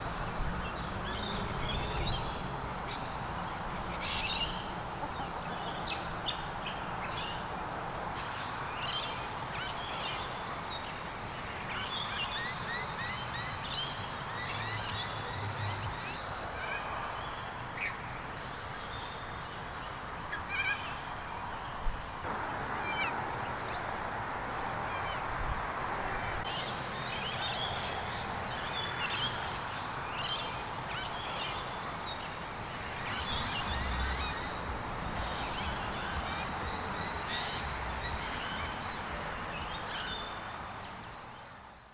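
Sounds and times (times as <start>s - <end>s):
background hiss: 21.0s - 30.8s.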